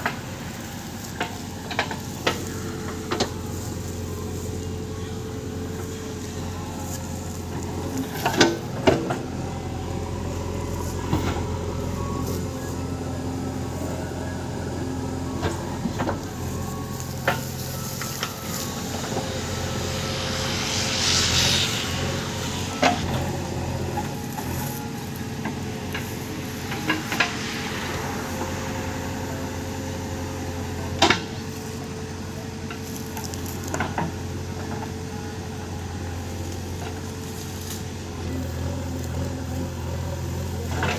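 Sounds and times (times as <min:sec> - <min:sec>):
backhoe diesel engine running: 0:00.0 - 0:40.9
brief hiss: 0:16.5 - 0:31.8.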